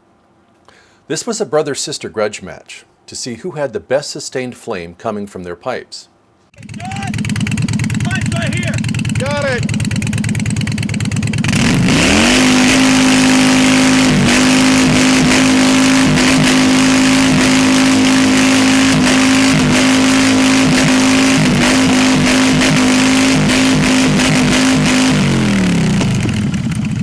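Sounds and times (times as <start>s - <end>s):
motorcycle engine revving hard: 6.6s - 27.0s.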